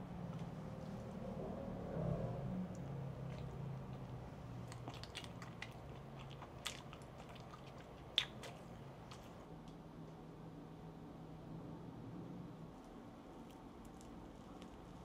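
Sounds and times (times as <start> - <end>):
faint low hum: 0.0 - 15.0
close-miked chewing: 2.6 - 9.5
wet mouth clicks: 4.7 - 9.4.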